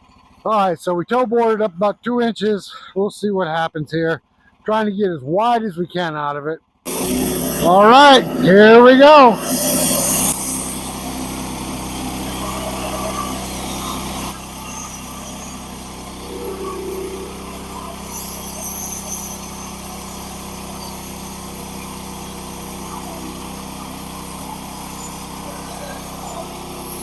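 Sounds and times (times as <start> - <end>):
band sawmill sawing log: 6.9 - 27.0.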